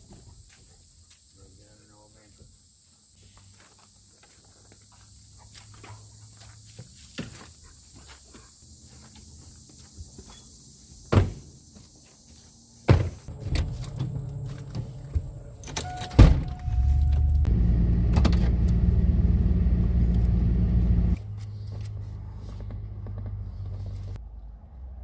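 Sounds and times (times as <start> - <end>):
truck engine starting and running: 13.3 - 24.2.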